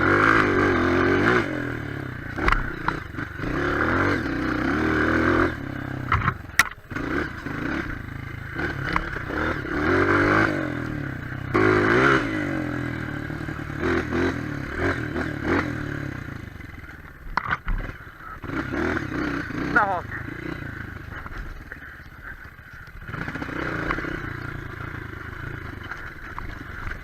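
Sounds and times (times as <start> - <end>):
motorcycle engine revving: 0.0 - 27.0
sharp click: 6.1 - 6.8.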